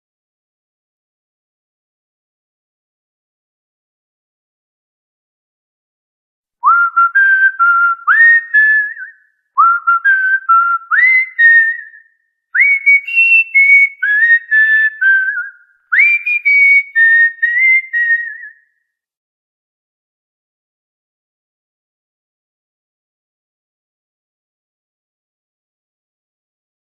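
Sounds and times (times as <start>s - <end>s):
cockatiel whistling a tune: 6.6s - 12.0s, 12.6s - 18.6s.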